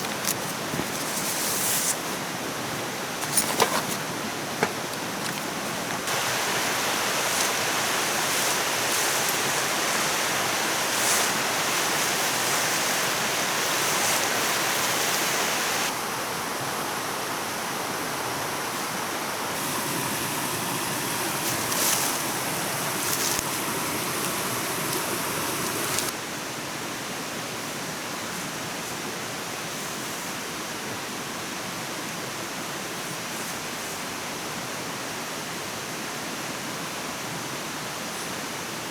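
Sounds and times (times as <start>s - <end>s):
flowing water rushing: 0.0s - 26.2s.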